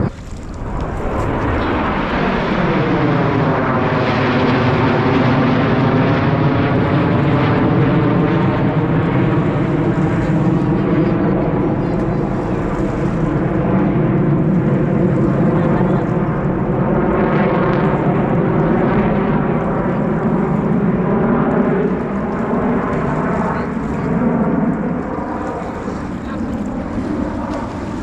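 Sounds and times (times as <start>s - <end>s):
jet engine roar overhead: 0.0s - 28.0s.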